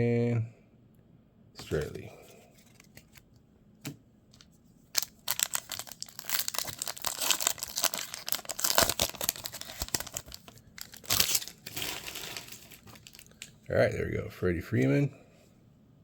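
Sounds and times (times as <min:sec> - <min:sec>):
wrapper tearing and crinkling: 0:05.0 - 0:13.5.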